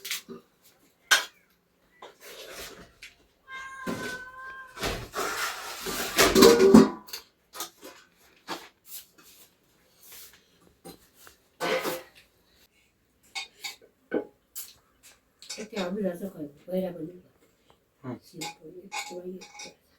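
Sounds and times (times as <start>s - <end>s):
animal crying: 3.5s - 5.0s.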